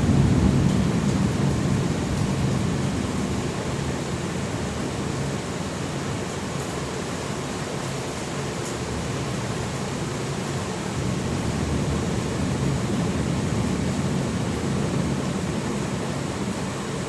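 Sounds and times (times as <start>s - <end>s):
distant thunder rumble: 0.0s - 3.1s.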